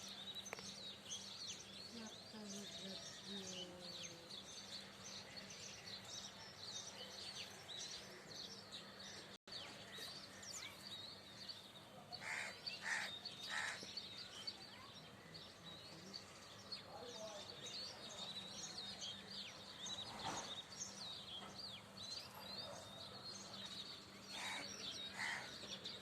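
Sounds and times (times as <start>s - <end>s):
birds chirping and twittering: 0.0s - 26.0s
large bird harsh calls: 12.2s - 14.9s, 24.2s - 26.0s.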